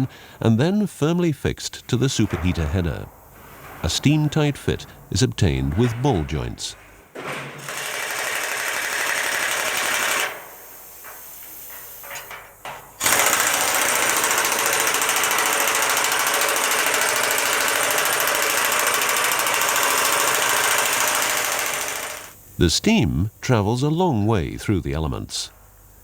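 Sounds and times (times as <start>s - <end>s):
pneumatic tool rattling: 7.1s - 22.4s.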